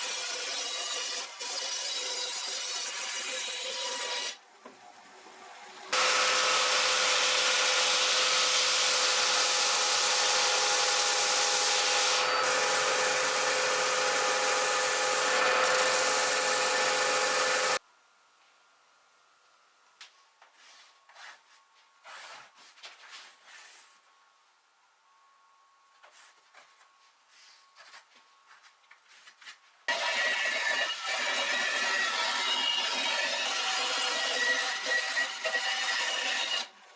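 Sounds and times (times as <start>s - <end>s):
electric woodworking tool sanding: 5.9s - 17.8s, 29.9s - 36.7s.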